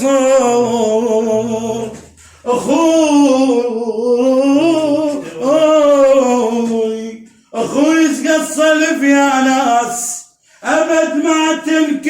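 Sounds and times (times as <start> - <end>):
man singing long wavering notes: 0.0 - 7.2.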